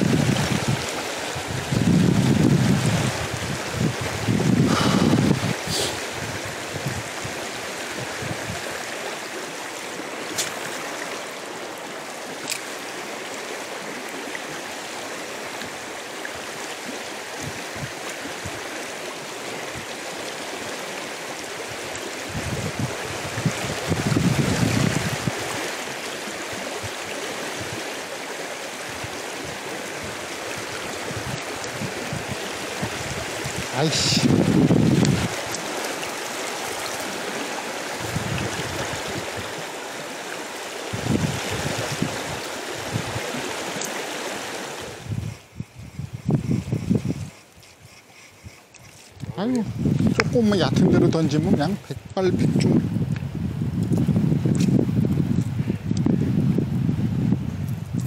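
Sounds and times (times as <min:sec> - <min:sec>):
river rushing over stones: 0:00.0 - 0:45.5.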